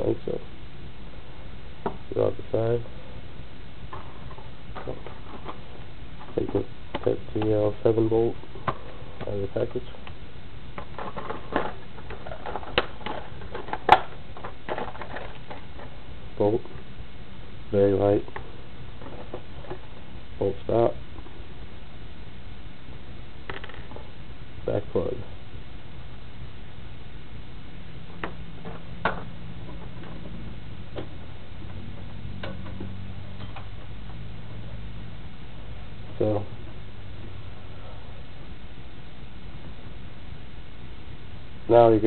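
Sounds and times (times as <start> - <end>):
steady low hum: 0.0 - 42.0
packaging rustling: 10.8 - 16.0.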